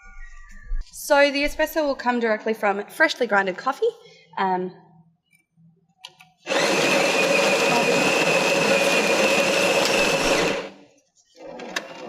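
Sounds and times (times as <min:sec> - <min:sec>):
coffee grinder whining: 0:06.5 - 0:10.8.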